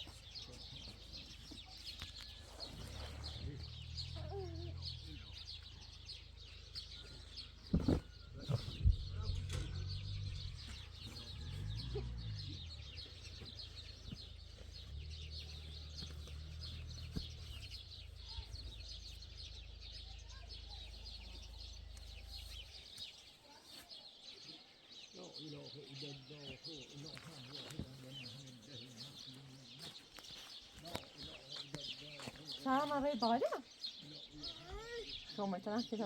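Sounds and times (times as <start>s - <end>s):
small birds chirping: 0.0s - 36.0s
low steady rumble: 8.3s - 22.8s.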